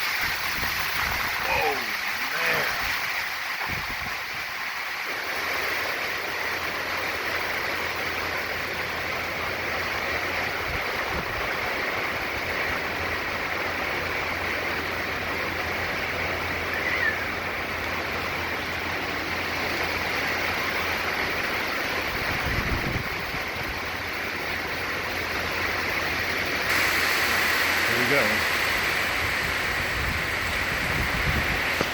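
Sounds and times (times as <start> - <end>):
gusts buffeting the microphone: 0.0 - 1.5, 2.6 - 4.6, 10.5 - 11.8, 17.6 - 24.1, 28.0 - 31.9
heavy wind-driven rain: 0.0 - 31.9
hurricane wind: 0.0 - 31.9.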